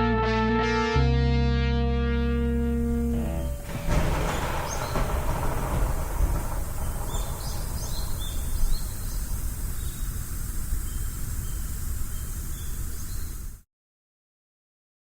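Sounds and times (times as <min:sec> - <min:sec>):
steady low rumble: 0:01.8 - 0:12.7
small birds chirping: 0:03.2 - 0:13.6.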